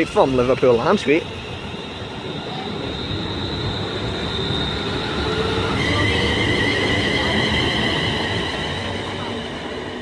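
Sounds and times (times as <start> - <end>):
electric train whining and rumbling: 0.0 - 10.0.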